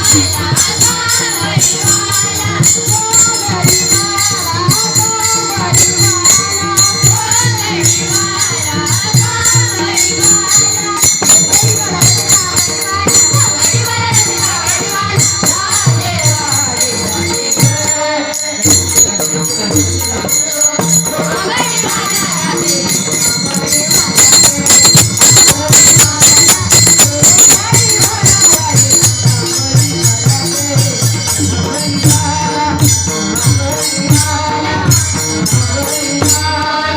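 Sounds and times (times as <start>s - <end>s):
devotional singing: 0.0s - 36.9s
drums: 0.0s - 36.9s
jingling hand percussion: 0.0s - 36.9s.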